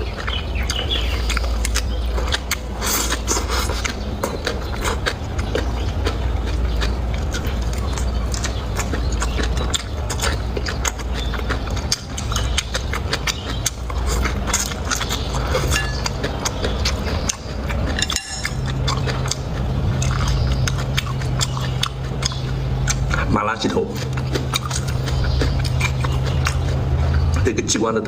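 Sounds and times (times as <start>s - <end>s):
chewing and crunching food: 0.0s - 28.0s
steady low hum: 0.0s - 28.0s
utensils clinking: 1.3s - 23.0s.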